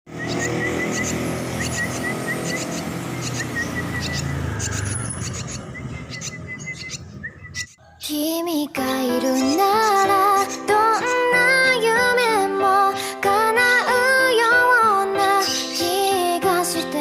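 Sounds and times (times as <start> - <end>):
swiftlets chirping: 0.1 - 7.8.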